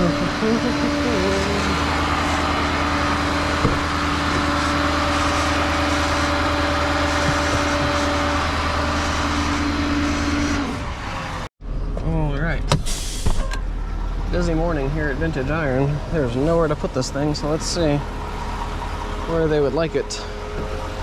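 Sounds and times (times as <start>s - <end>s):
constant whine: 0.0s - 12.7s
truck engine and road noise: 0.0s - 21.0s.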